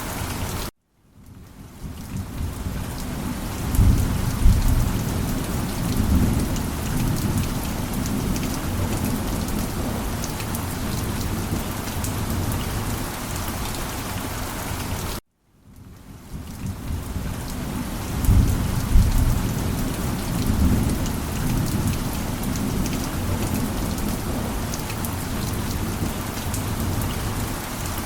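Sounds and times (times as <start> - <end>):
rain falling: 0.0 - 28.0
thunder rumbling: 2.2 - 13.0, 16.6 - 27.6.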